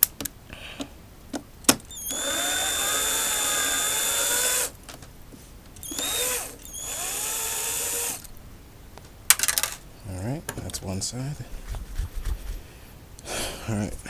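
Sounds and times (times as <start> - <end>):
cordless drill whining: 1.9 - 4.8, 5.8 - 8.3.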